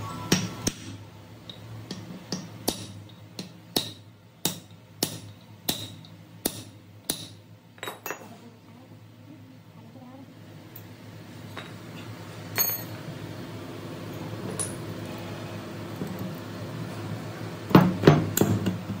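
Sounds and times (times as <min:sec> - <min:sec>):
hammer tapping on metal: 0:01.8 - 0:07.4.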